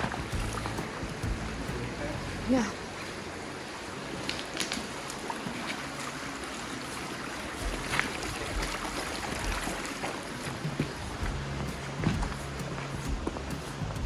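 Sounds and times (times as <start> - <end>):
wind thump on microphone: 0.0 - 1.9, 10.7 - 14.0
river water rushing: 0.0 - 14.0.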